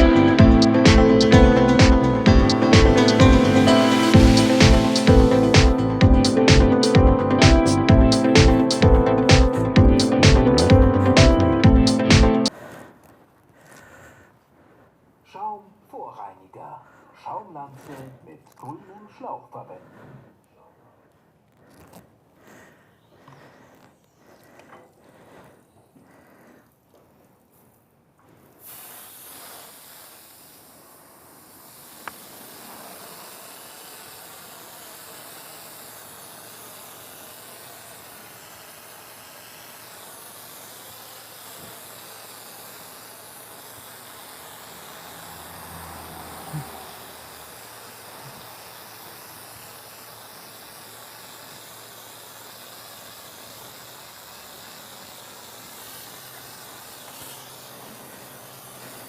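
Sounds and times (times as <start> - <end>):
foam lance spraying hiss: 0.0 - 12.6, 28.3 - 59.0.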